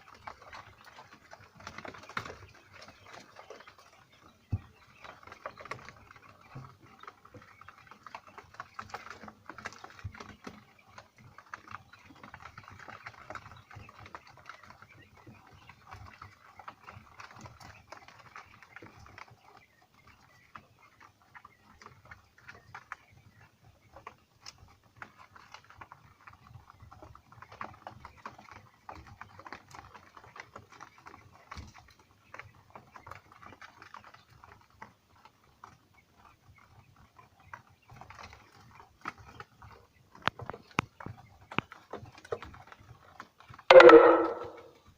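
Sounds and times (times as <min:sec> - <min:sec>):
chicks pecking and scratching: 0:00.0 - 0:44.9
chick calls: 0:43.5 - 0:44.9.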